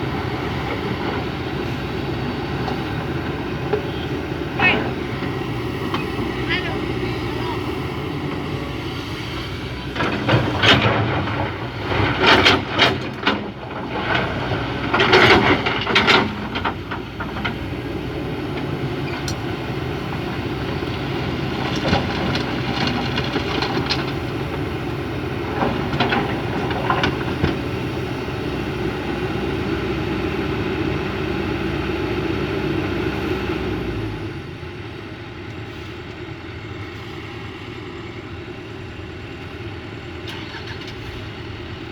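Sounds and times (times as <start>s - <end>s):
excavator diesel engine running: 0.0s - 41.9s
bucket clanks and rattles: 9.9s - 17.6s.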